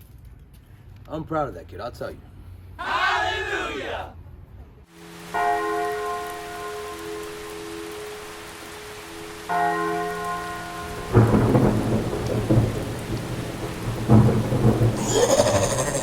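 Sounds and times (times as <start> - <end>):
rain hissing: 4.9 - 16.0
thunder rumble: 10.6 - 16.0.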